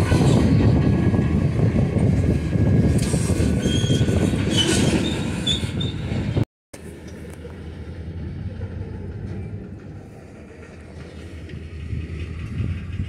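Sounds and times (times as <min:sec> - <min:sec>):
train wheels rumbling on rails: 0:00.0 - 0:13.0
high wheel squeals: 0:03.1 - 0:06.3.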